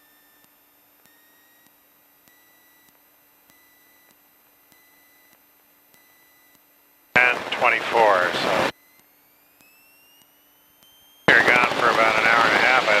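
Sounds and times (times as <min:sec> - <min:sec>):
low hum: 0:07.2 - 0:08.7.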